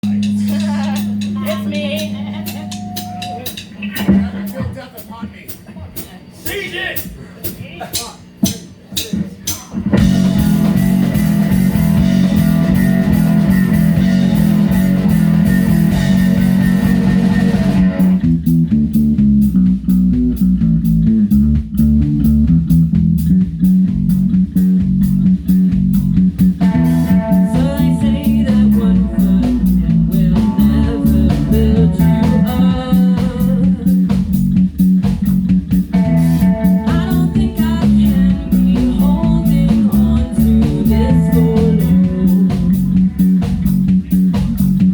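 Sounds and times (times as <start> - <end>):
guitar riff: 0.0 - 4.6, 10.0 - 44.9
rock band playing: 0.0 - 7.6, 8.4 - 44.9.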